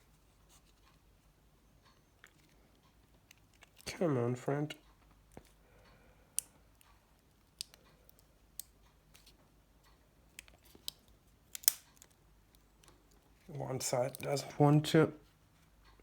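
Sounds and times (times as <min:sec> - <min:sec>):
plastic parts clicking into housing: 0:10.4 - 0:12.2.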